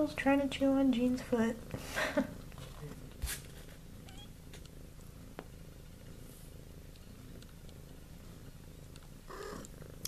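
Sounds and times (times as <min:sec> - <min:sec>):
cat purring: 0:00.0 - 0:10.0
faint clicks: 0:06.9 - 0:07.8, 0:08.8 - 0:09.8.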